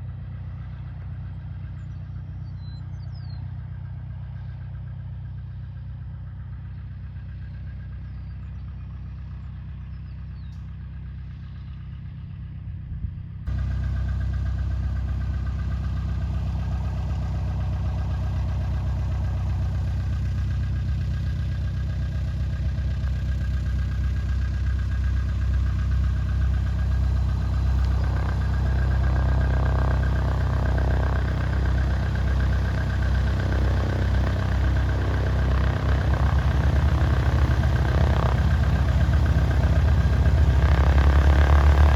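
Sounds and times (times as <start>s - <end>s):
aircraft piston engine running: 13.5s - 41.9s.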